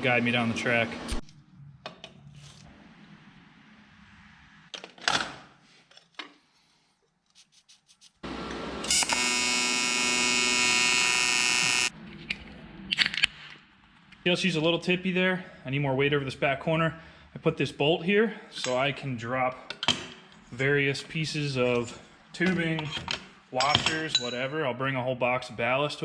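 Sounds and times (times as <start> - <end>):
power tool motor buzzing: 8.2 - 11.9.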